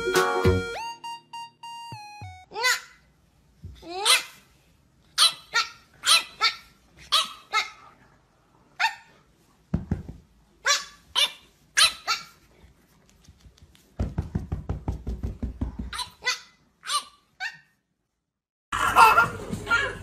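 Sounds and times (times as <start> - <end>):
puppy yapping: 5.2 - 7.8, 10.6 - 12.4.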